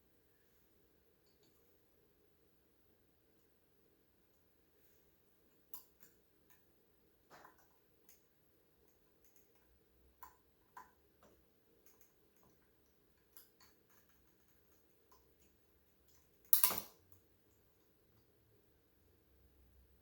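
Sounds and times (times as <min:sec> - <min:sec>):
small metal parts clicking: 0:16.1 - 0:17.0.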